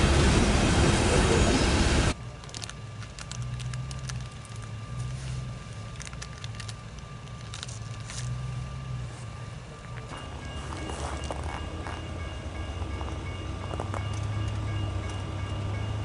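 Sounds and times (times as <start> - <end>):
diesel locomotive engine rumbling: 0.0 - 16.0
faint clicks and crackles: 2.3 - 8.5.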